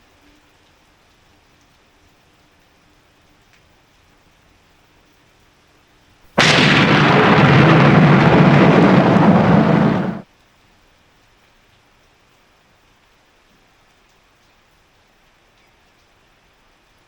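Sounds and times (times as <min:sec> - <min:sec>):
faint steady rain: 0:00.0 - 0:17.0
loud thunderclap rumbling: 0:06.4 - 0:10.2.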